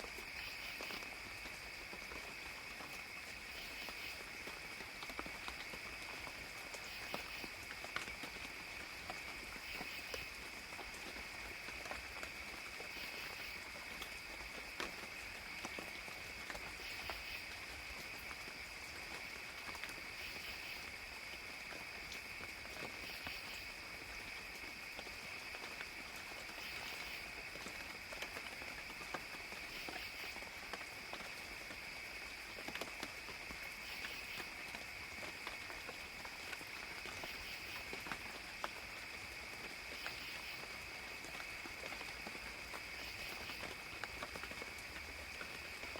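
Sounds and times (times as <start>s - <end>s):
raindrops dripping: 0.0s - 45.9s
insects chirring: 0.1s - 10.4s, 12.8s - 45.9s.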